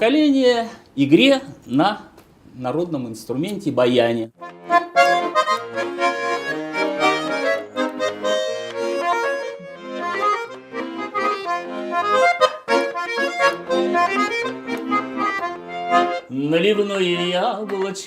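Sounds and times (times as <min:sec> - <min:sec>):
button accordion folk tune: 0:04.4 - 0:18.0.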